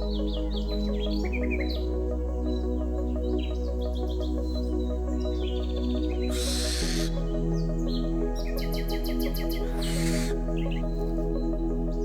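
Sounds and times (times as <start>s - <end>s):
soft background music: 0.0s - 12.0s
owl screech: 6.3s - 7.1s, 9.8s - 10.3s.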